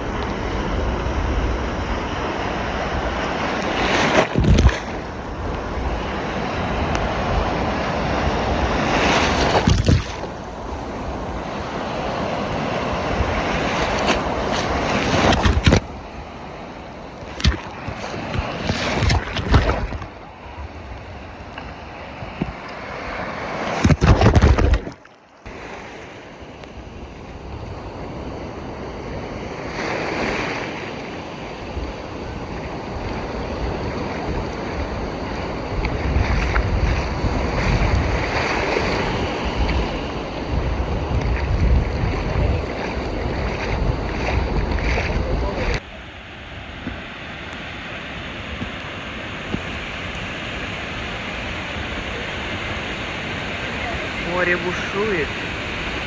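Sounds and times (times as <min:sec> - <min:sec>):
wind buffeting microphone: 0:00.0 - 0:22.7, 0:31.0 - 0:45.8
surf breaking on shore: 0:00.0 - 0:56.0.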